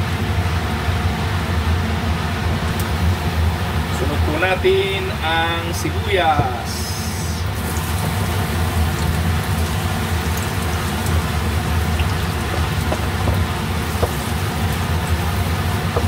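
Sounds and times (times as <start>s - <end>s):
steady low hum: 0.0s - 16.0s
onion sizzling in hot oil: 6.7s - 16.0s.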